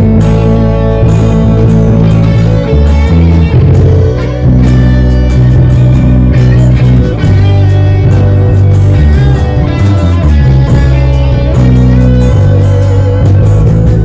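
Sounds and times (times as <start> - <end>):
bass notes: 0.0 - 14.0
drum and cymbal hits: 0.0 - 14.0
guitar chords: 0.0 - 14.0
live band playing: 0.0 - 14.0.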